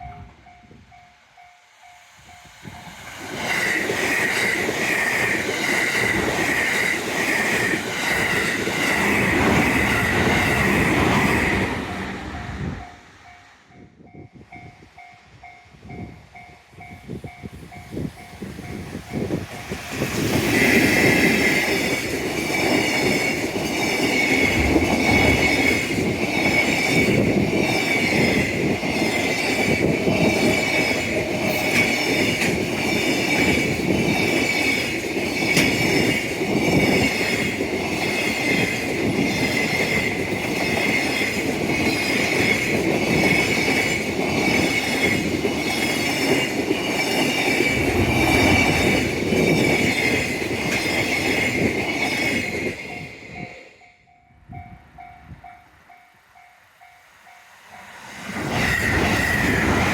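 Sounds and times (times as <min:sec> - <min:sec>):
train wheels clacking over rail joints: 0:18.0 - 0:53.1.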